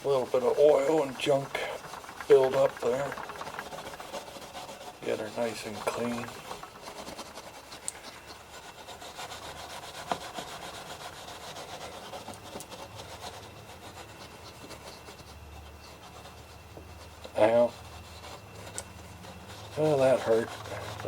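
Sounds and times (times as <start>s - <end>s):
steel wool scrubbing a table: 0.0s - 21.0s.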